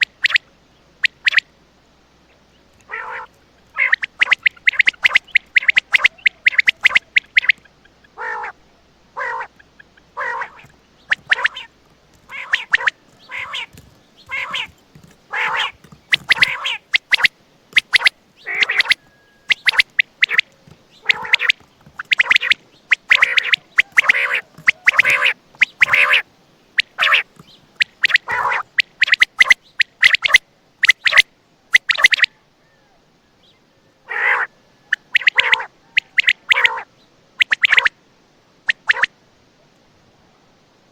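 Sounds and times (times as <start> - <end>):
quail calling: 0.0 - 1.5, 2.3 - 38.0, 38.7 - 39.1.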